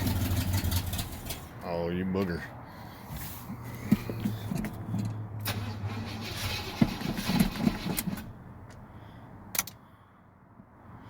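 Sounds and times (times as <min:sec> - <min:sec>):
engine starting and running unevenly: 0:00.0 - 0:01.5, 0:03.8 - 0:08.3.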